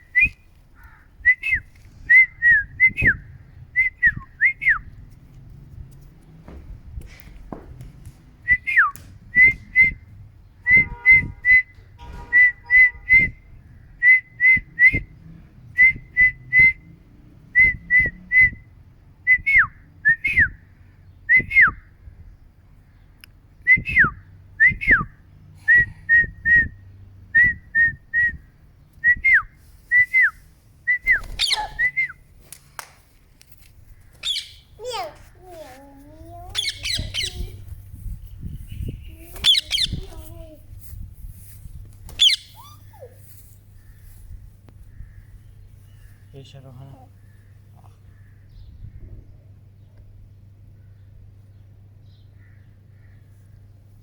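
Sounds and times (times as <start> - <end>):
parrot whistling: 31.4 - 32.1, 34.2 - 34.7, 36.6 - 37.5, 39.4 - 40.0, 42.2 - 43.1.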